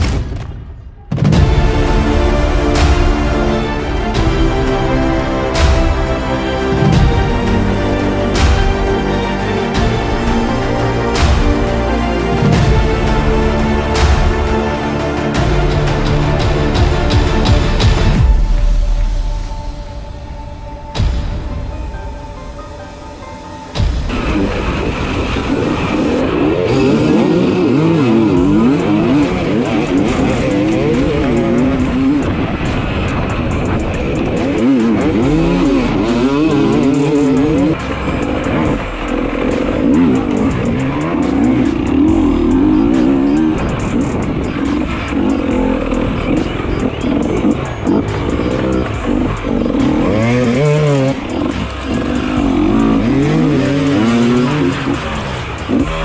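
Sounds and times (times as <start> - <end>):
dirt bike engine revving: 24.1 - 56.0.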